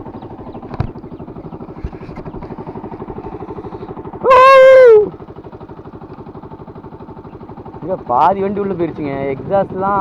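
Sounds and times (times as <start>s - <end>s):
motorcycle engine idling: 0.0s - 10.0s
loud held tone dropping in pitch: 4.2s - 5.1s.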